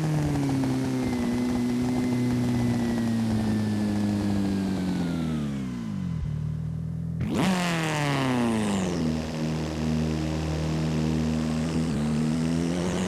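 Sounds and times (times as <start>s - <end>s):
video game car engine revving: 0.0s - 13.0s.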